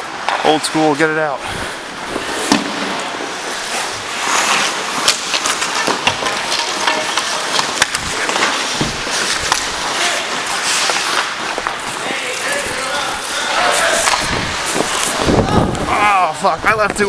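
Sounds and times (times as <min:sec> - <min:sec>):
hockey sticks and puck clacking: 0:00.1 - 0:01.2, 0:02.1 - 0:17.0
skate blades scraping ice: 0:00.1 - 0:17.0.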